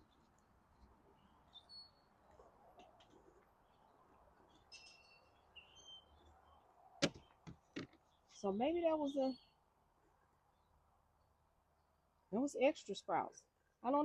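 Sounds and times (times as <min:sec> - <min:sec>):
faint bird chirps: 0:00.0 - 0:02.2, 0:03.6 - 0:07.4, 0:08.0 - 0:09.6.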